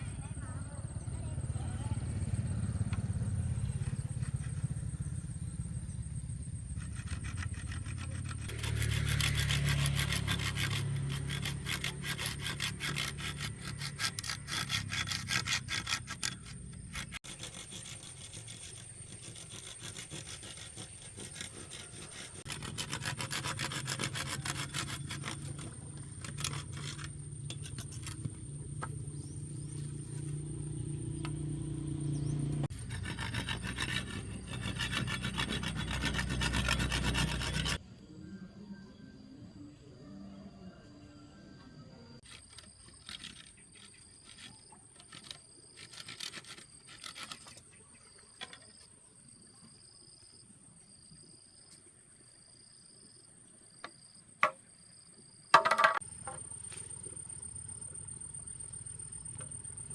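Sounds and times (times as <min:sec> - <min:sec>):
hand saw cutting wood: 0:06.6 - 0:29.0, 0:29.7 - 0:37.8, 0:42.2 - 0:48.7, 0:55.6 - 0:56.0.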